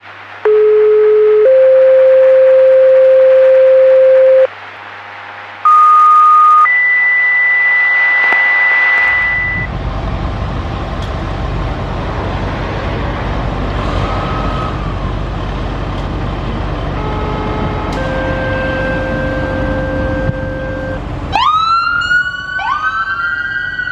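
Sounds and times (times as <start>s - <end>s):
radio alert tones: 0.5s - 4.5s, 5.6s - 9.7s
street traffic rumble: 9.0s - 23.9s.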